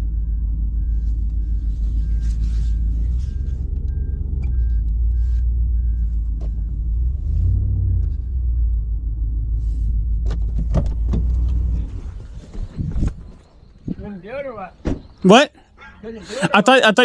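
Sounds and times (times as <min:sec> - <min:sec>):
reversing alarm beeping: 0:00.0 - 0:08.2
vehicle engine droning: 0:00.0 - 0:16.6.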